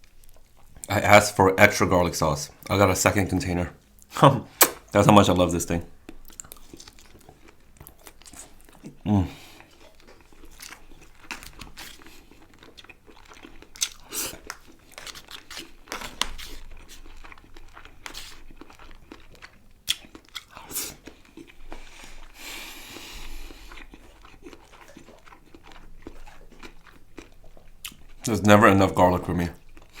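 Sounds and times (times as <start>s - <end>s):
person biting and chewing food: 4.6s - 4.9s, 6.1s - 28.3s, 29.6s - 30.0s.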